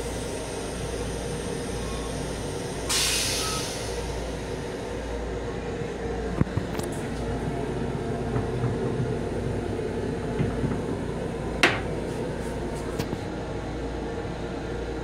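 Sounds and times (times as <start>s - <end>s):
railcar rumble and hum: 0.0s - 15.0s.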